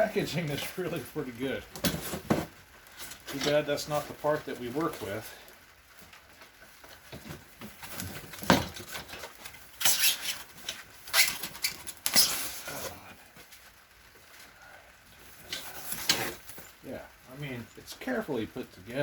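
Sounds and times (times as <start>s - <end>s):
packing material rustling: 6.5s - 14.6s, 15.2s - 16.8s.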